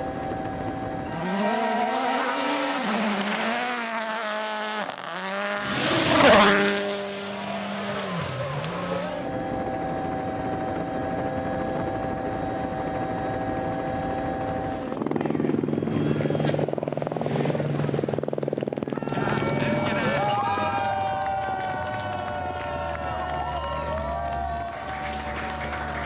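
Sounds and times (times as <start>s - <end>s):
steady drone: 0.0s - 18.5s
tyres on gravel: 1.1s - 9.2s
rally car engine revving past: 1.1s - 9.3s.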